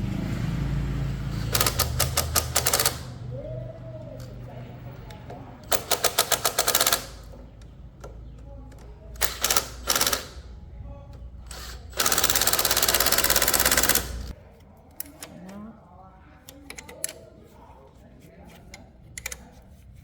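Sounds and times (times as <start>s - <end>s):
impact wrench hammering: 5.6s - 7.3s, 11.5s - 14.3s.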